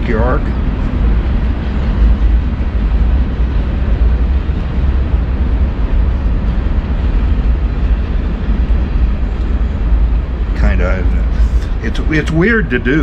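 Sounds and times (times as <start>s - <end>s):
low rumble: 0.0s - 13.0s
steady hiss: 0.0s - 13.0s.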